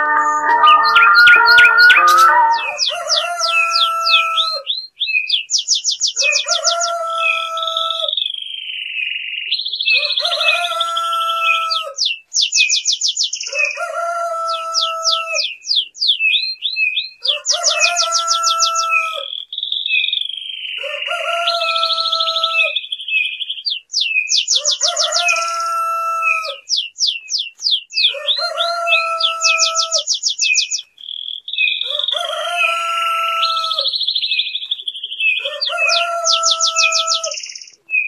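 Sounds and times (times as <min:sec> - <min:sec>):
long low bird call: 0:00.0 - 0:06.6
falling bird chirps and trill: 0:00.0 - 0:38.0.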